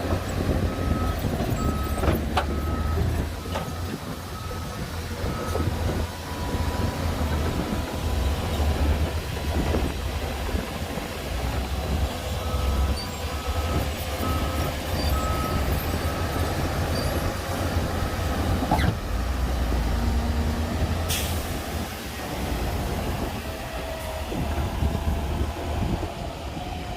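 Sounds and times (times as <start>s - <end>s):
heavy diesel machinery engines: 0.0s - 26.9s
reversing alarm beeping: 0.4s - 7.7s, 12.4s - 17.4s.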